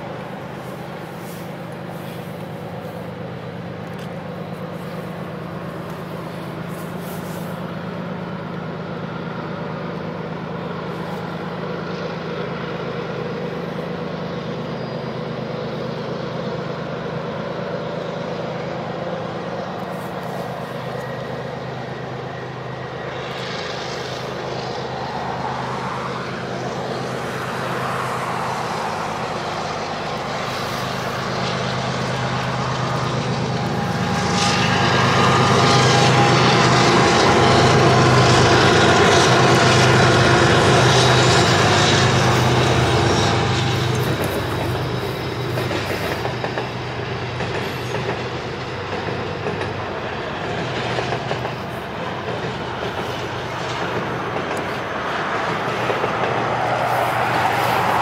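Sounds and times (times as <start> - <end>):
diesel locomotive engine drone: 0.0 - 58.0
rising whine: 18.6 - 47.2
river rapids rushing: 24.3 - 46.9, 51.6 - 58.0.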